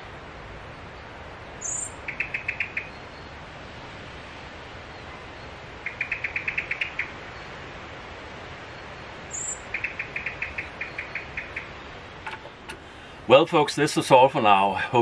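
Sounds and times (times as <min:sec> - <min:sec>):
faint hiss: 0:00.0 - 0:15.0
songbird trills: 0:00.9 - 0:03.4, 0:04.9 - 0:07.6, 0:09.2 - 0:12.7
high bird chirp: 0:05.8 - 0:07.1, 0:09.3 - 0:11.8.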